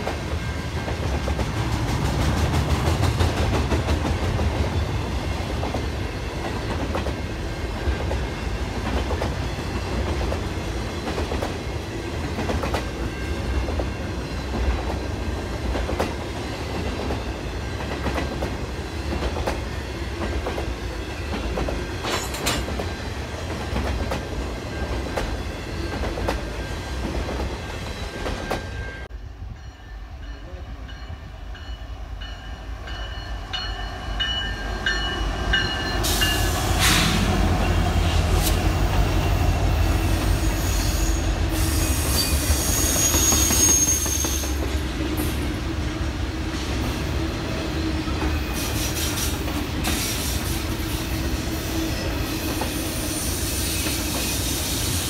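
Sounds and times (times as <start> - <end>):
train wheels clacking over rail joints: 21.3 - 24.4
high-pitched wheel squeal: 40.4 - 44.6.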